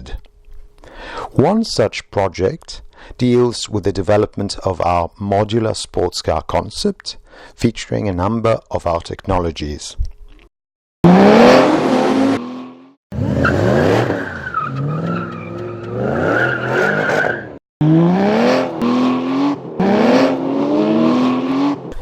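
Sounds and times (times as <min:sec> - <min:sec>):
car engine accelerating hard: 0:11.0 - 0:17.1, 0:17.8 - 0:22.0
tyre squeal: 0:13.2 - 0:17.6.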